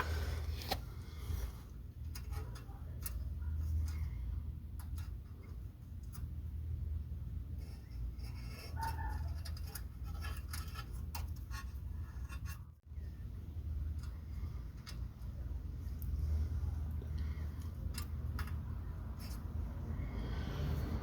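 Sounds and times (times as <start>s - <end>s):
hand tools clicking and scraping: 0.0s - 6.5s, 7.5s - 12.8s, 17.0s - 20.0s
steady low hum: 0.0s - 21.0s.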